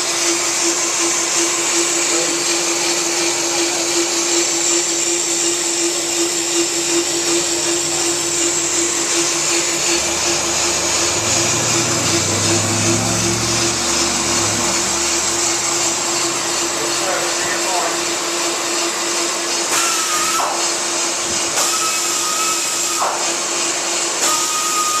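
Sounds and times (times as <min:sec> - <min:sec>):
brake lathe running: 0:00.0 - 0:25.0
high whine: 0:04.8 - 0:18.6.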